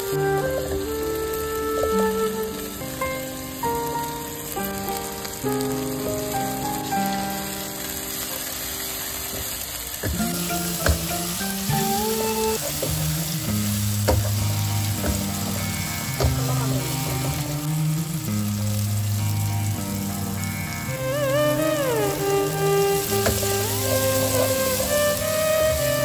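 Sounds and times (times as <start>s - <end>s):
vegetables sizzling in hot oil: 0.0s - 26.0s
wooden spatula knocking pan: 10.0s - 11.2s, 14.0s - 17.4s.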